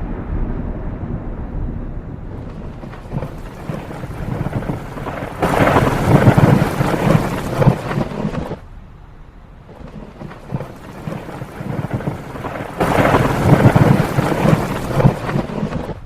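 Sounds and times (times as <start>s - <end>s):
rain falling: 0.0s - 16.0s
thunder rumbling: 0.0s - 16.0s.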